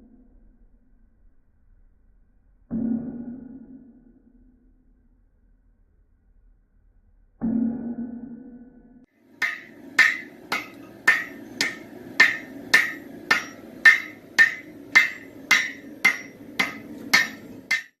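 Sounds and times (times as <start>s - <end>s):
hammer striking steel on anvil: 9.4s - 18.0s
low hum: 9.4s - 18.0s.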